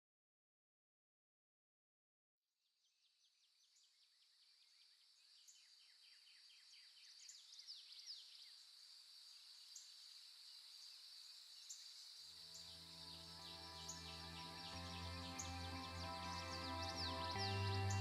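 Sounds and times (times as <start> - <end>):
high insect drone: 8.4 - 18.0
bird chirps: 11.6 - 18.0
soft music: 12.4 - 18.0.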